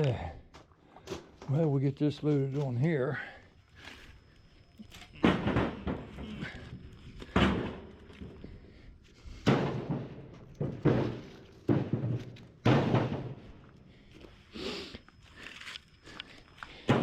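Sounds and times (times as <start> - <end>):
wood pieces thudding onto load: 5.2 - 8.3, 9.4 - 13.6.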